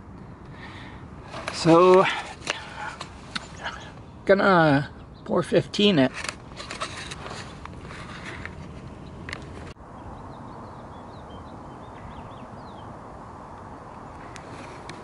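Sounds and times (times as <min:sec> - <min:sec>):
low outdoor background noise: 0:00.0 - 0:15.0
handling clicks and rustles: 0:01.2 - 0:04.0, 0:05.8 - 0:09.8.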